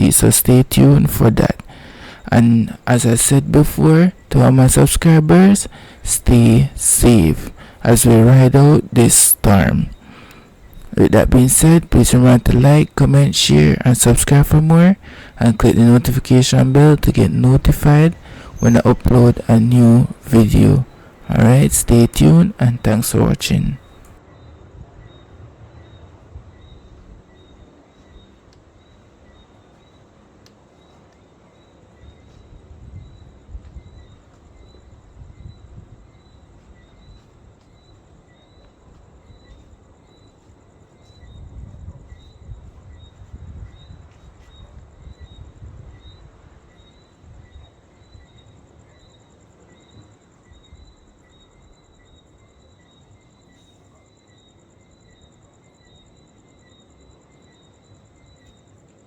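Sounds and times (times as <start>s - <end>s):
night insects chirping: 0.0s - 59.0s
wind rumbling on microphone: 23.8s - 27.7s, 32.3s - 37.6s, 41.2s - 47.7s.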